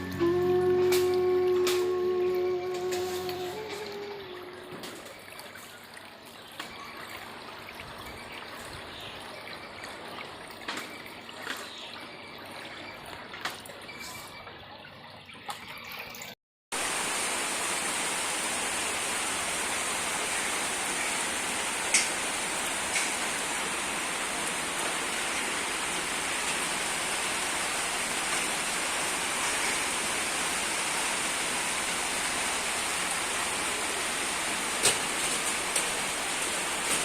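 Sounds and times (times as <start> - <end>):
floodwater flowing: 0.0 - 37.0
water drips and splashes: 0.0 - 37.0
rain hiss: 16.8 - 37.0.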